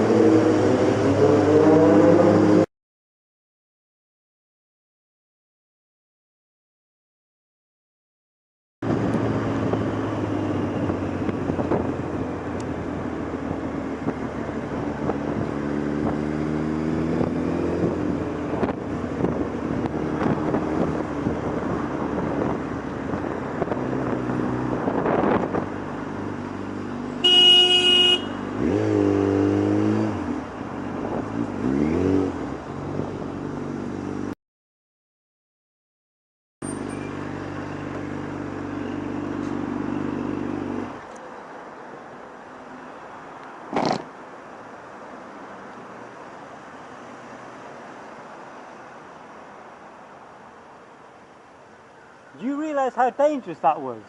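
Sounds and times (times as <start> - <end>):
motorcycle engine revving: 0.0 - 2.7, 14.0 - 21.3, 23.6 - 30.5, 31.2 - 34.3, 43.7 - 44.1
horn honking: 27.2 - 28.8.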